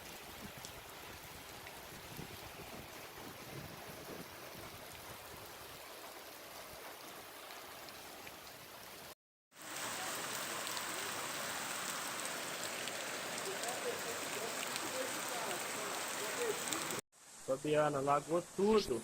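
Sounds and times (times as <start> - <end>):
running floodwater: 0.0 - 19.0
heavy rain hissing: 9.6 - 19.0.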